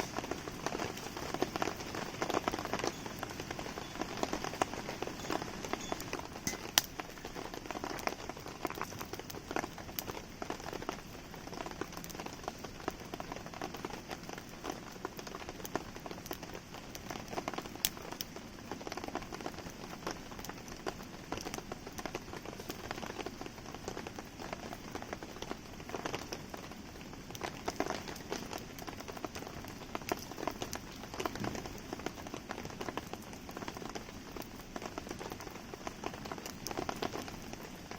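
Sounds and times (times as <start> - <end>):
fire popping sharply: 0.0 - 11.0
campfire crackling: 0.0 - 37.9
rain pattering: 0.0 - 37.9.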